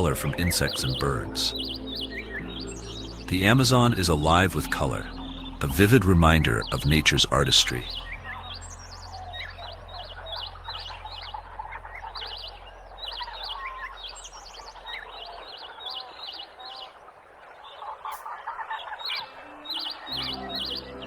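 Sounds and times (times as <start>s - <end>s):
low steady hum: 0.0s - 15.3s
birds chirping: 0.0s - 21.0s
softer bird calls and hiss: 0.0s - 21.0s.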